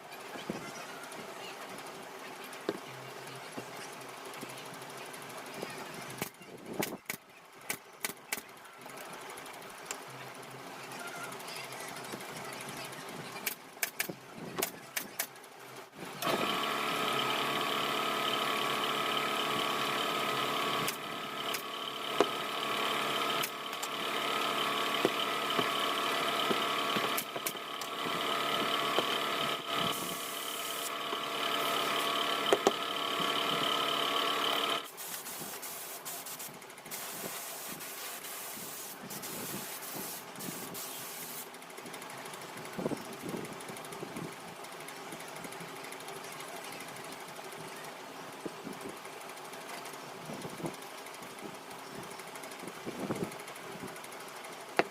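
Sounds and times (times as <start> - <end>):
sharp clicks and knocks: 13.4 - 15.3, 32.5 - 32.8
small motor humming: 16.0 - 41.5.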